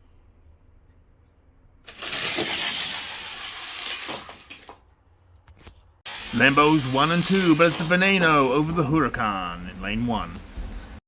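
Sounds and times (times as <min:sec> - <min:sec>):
toy cars rattling down plastic track: 0:01.9 - 0:04.8, 0:06.1 - 0:09.3
sharp clacks of toy cars: 0:01.9 - 0:04.9.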